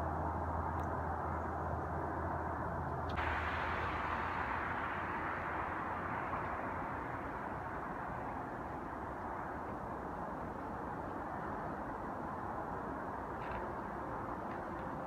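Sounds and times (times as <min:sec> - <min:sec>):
jet engine roar: 0:03.1 - 0:12.2.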